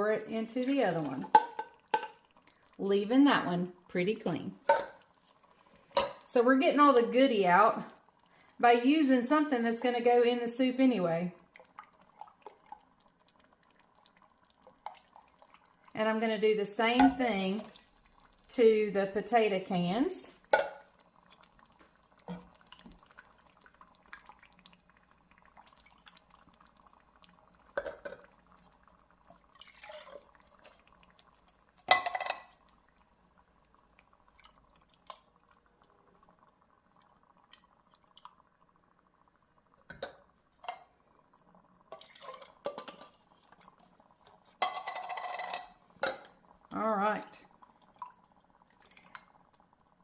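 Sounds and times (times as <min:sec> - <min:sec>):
liquid sloshing and pouring: 0:11.4 - 0:16.0, 0:17.1 - 0:18.5, 0:20.3 - 0:38.7, 0:39.7 - 0:46.7, 0:47.4 - 0:49.6
metal cans clinking: 0:44.6 - 0:46.3.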